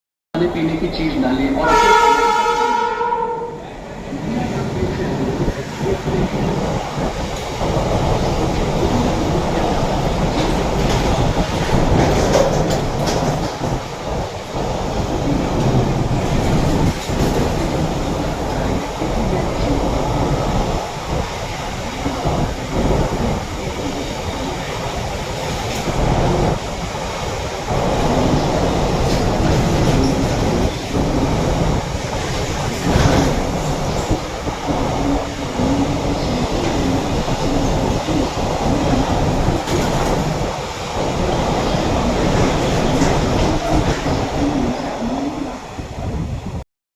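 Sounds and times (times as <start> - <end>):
train wheels rumbling on rails: 0.4 - 46.6
clicks at rail joints: 10.3 - 13.8.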